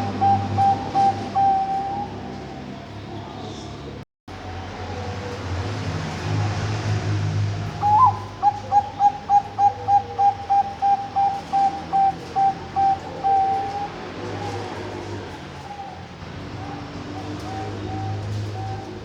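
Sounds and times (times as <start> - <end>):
dove cooing: 0.0 - 2.8, 7.7 - 19.0.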